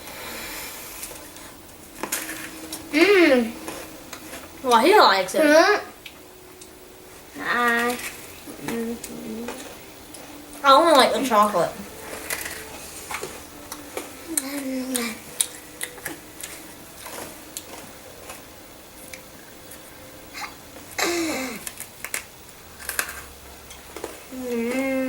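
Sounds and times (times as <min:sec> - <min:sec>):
crunchy food being chewed: 0:00.9 - 0:02.9, 0:03.5 - 0:04.6, 0:06.0 - 0:10.6, 0:11.9 - 0:24.9
person humming: 0:02.9 - 0:03.6, 0:07.4 - 0:10.3, 0:12.7 - 0:15.3, 0:24.3 - 0:25.0.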